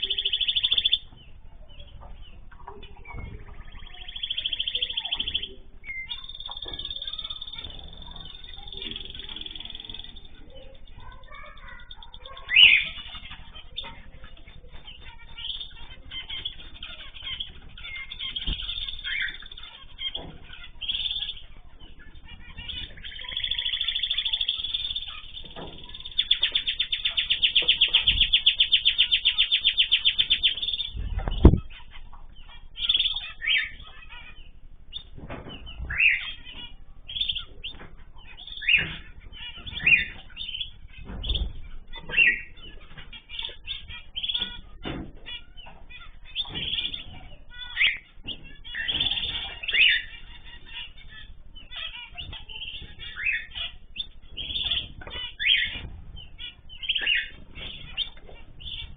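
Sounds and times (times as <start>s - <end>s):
rapid pulsed bird trill: 0.0s - 58.9s
small birds chirping: 0.0s - 58.9s.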